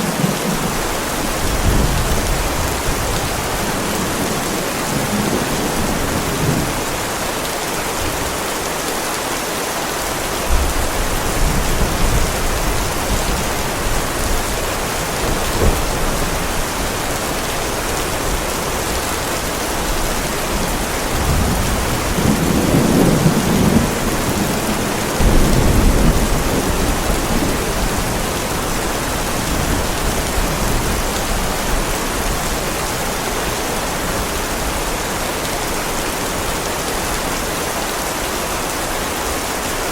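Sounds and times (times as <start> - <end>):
low thunder rumbling: 0.0 - 7.1, 10.5 - 32.6
heavy rain on a driveway: 0.0 - 39.9.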